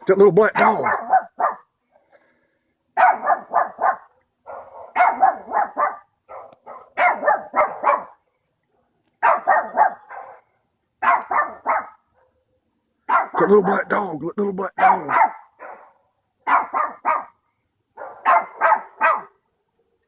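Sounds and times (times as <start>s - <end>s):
dog barking rapidly: 0.4s - 1.7s, 3.0s - 8.2s, 9.2s - 12.4s, 13.1s - 13.9s, 14.7s - 17.4s, 18.0s - 19.4s.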